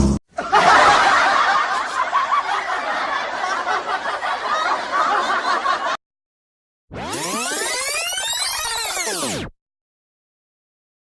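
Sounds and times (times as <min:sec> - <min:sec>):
crowd laughing: 0:00.3 - 0:06.0.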